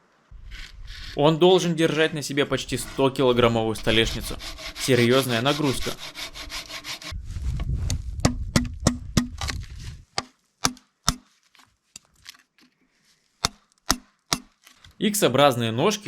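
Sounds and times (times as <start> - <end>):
low rumble: 0.3 - 1.6, 7.1 - 10.1
axe striking wooden pole: 8.2 - 9.6, 10.2 - 11.3, 13.4 - 14.6.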